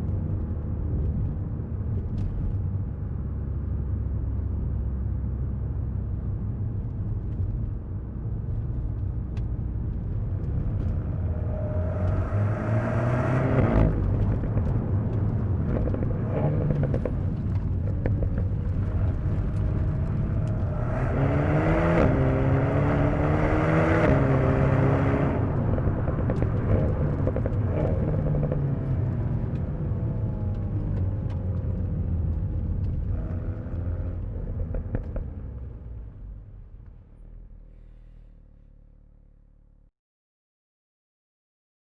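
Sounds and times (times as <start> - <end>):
low road rumble: 0.0 - 39.9
car engine revving hard: 20.2 - 25.4.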